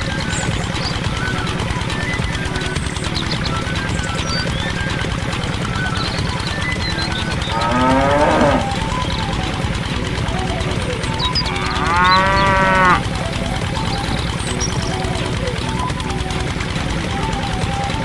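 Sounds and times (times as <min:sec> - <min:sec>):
steady low hum: 0:00.0 - 0:18.0
cow mooing: 0:07.5 - 0:08.8, 0:11.5 - 0:13.0.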